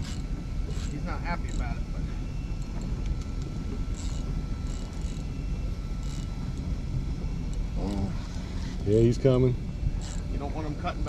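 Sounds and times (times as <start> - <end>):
boat engine idling: 0.0 - 11.0
wind and water rumble: 0.0 - 11.0.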